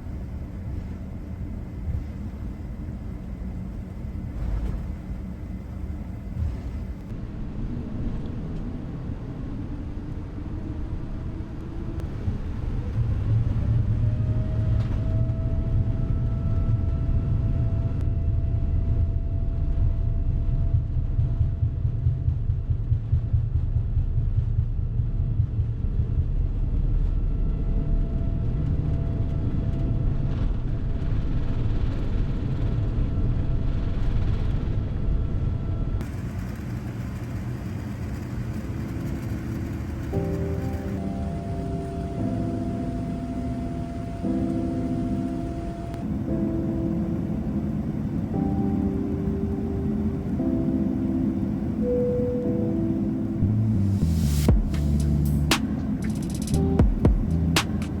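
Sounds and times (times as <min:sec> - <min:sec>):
low drone of aircraft rolling: 0:00.0 - 0:58.0
jet engines spooling up: 0:35.8 - 0:58.0.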